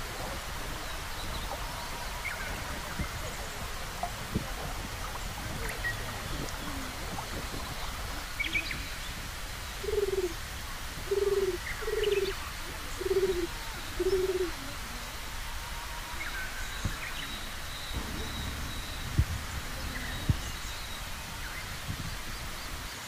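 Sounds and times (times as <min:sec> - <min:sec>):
pigeon cooing: 0:09.8 - 0:10.4, 0:11.1 - 0:12.4, 0:13.0 - 0:15.0
faint high bird chirps: 0:11.1 - 0:15.2.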